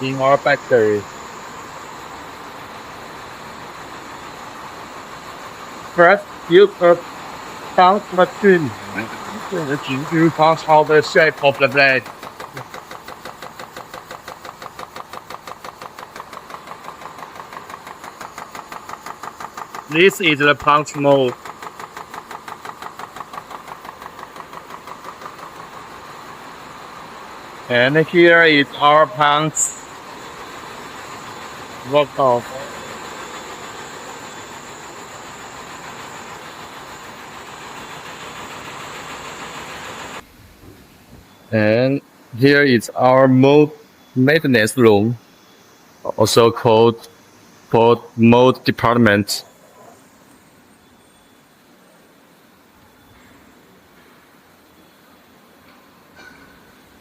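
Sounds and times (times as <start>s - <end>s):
machinery rush: 0.0s - 40.2s
high-pitched machine whine: 0.0s - 57.0s.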